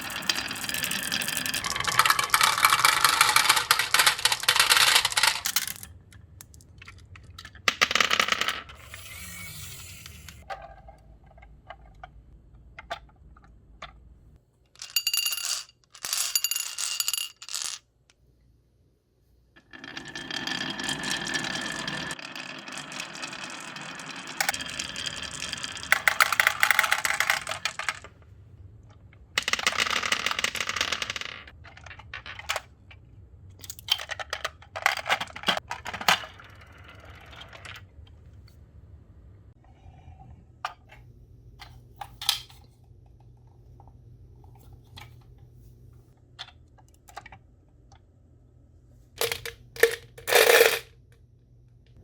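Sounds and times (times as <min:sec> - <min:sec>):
marbles rolling down marble run: 0:00.0 - 0:05.9, 0:14.8 - 0:17.8, 0:19.6 - 0:28.1, 0:29.4 - 0:32.4, 0:49.2 - 0:50.8.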